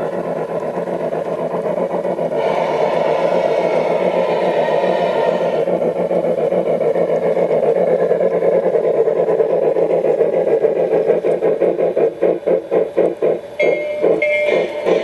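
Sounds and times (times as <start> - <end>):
model train whirring on track: 0.0 - 15.0.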